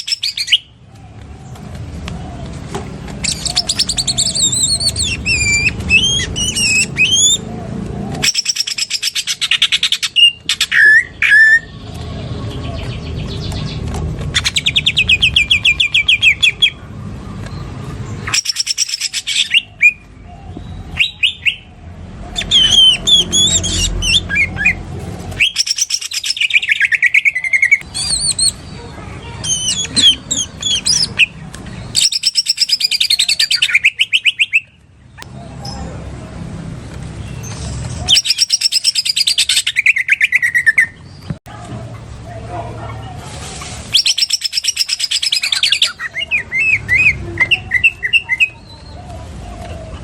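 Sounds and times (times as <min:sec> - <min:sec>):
bird whistled phrases: 0:00.0 - 0:00.7, 0:03.2 - 0:07.5, 0:08.2 - 0:11.8, 0:14.4 - 0:16.8, 0:18.2 - 0:34.8, 0:37.3 - 0:41.0, 0:43.9 - 0:49.1
bird singing trilled notes: 0:00.0 - 0:00.8, 0:03.2 - 0:07.5, 0:08.2 - 0:11.8, 0:12.4 - 0:21.8, 0:22.4 - 0:36.0, 0:37.2 - 0:41.3, 0:44.0 - 0:49.0.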